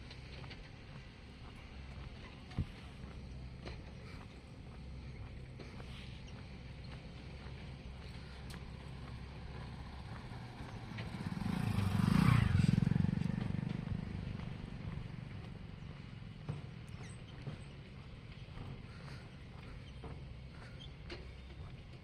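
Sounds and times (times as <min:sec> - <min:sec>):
motorcycle passing by: 0:07.4 - 0:17.7.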